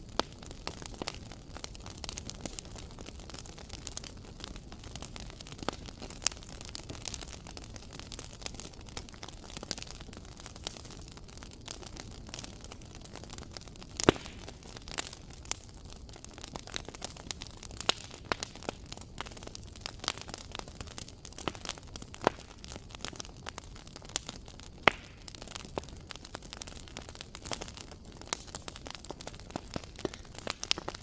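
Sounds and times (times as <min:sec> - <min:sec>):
fire low hiss: 0:00.0 - 0:31.0
fire popping and snapping: 0:00.0 - 0:31.0.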